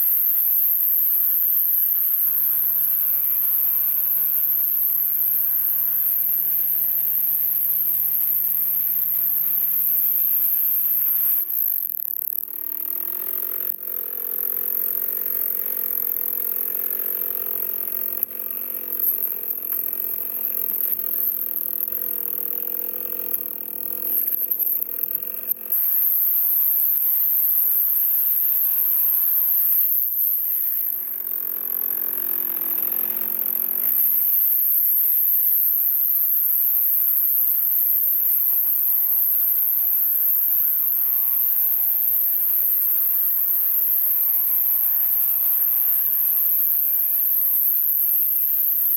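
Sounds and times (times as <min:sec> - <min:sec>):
chainsaw cutting through log: 0:00.0 - 0:48.9.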